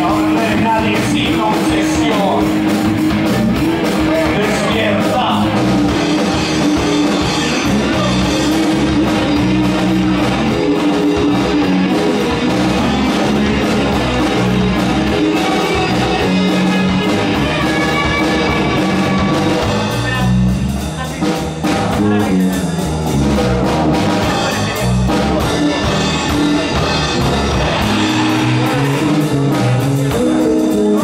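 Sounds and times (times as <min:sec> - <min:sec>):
bass guitar: 0:00.0 - 0:31.0
drum kit beat: 0:00.0 - 0:31.0
electric guitars: 0:00.0 - 0:31.0.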